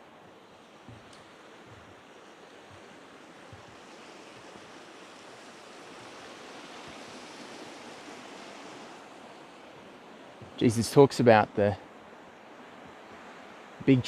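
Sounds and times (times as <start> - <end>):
steady rushing outdoor noise: 0.0 - 14.0
faint low knocks: 0.8 - 2.0.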